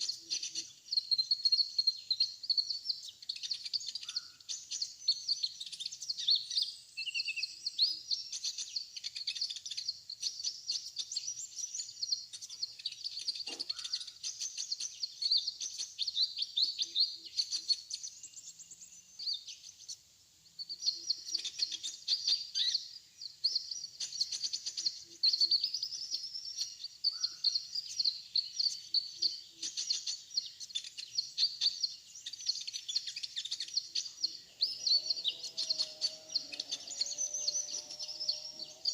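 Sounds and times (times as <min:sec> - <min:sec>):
sunbirds chirping rapidly: 0:00.0 - 0:38.9.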